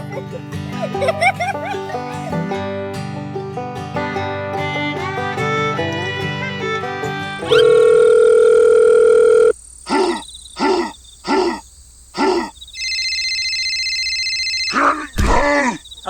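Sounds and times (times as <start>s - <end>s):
short tones: 7.4s - 9.5s, 12.8s - 15.4s
electronic ringing tone: 7.4s - 9.6s, 12.8s - 15.2s
telephone dial tone: 7.4s - 9.6s, 12.8s - 14.8s.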